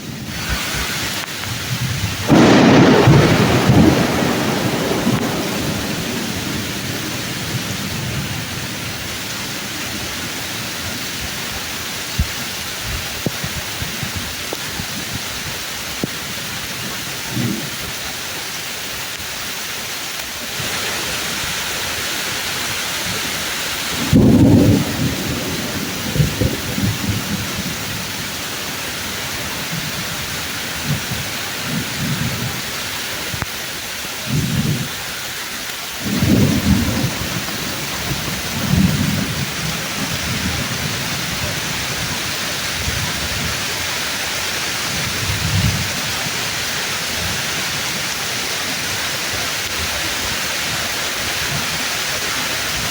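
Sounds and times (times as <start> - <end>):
thunder rolling: 0.0 - 15.2, 22.6 - 33.4, 36.0 - 50.1
heavy rain through tree leaves: 0.0 - 52.9
sharp thunderclap: 0.1 - 11.4, 23.0 - 32.7, 36.0 - 48.2.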